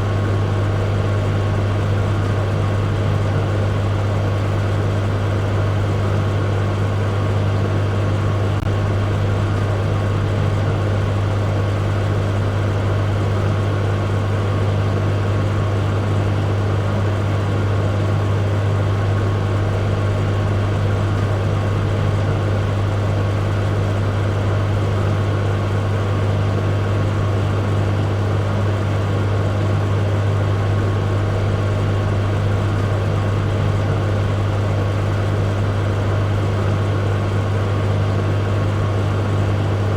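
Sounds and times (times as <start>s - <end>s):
microwave oven humming: 0.0s - 39.9s.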